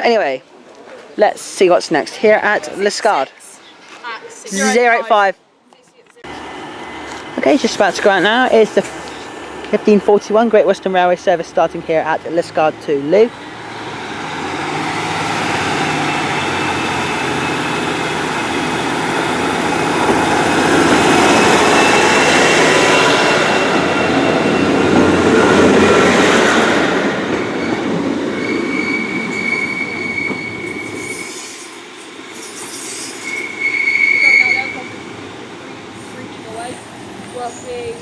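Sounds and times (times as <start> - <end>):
train engine and wheel noise: 5.4 - 38.0
high wheel squeal: 13.9 - 25.6, 27.3 - 35.3.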